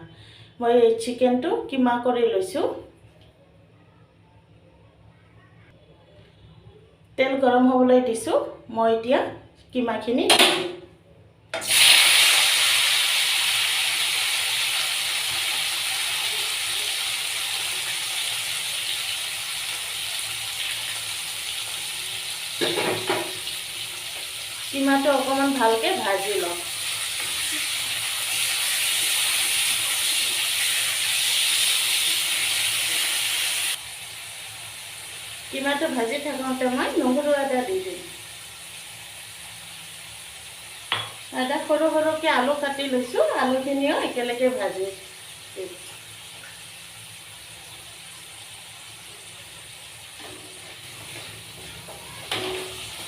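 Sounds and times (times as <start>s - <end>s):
chicken frying in hot oil: 11.6s - 53.0s.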